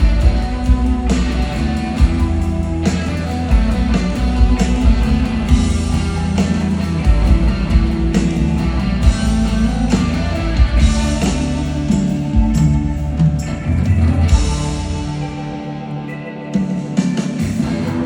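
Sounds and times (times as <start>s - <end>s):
heavy bass line: 0.0s - 15.6s
lead guitar: 0.0s - 18.0s
rock band playing: 0.0s - 18.0s.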